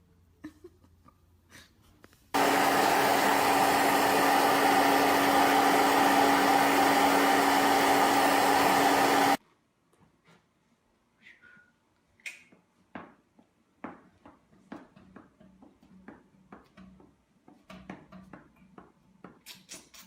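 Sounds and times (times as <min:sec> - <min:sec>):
small electric motor humming: 0:02.4 - 0:09.4.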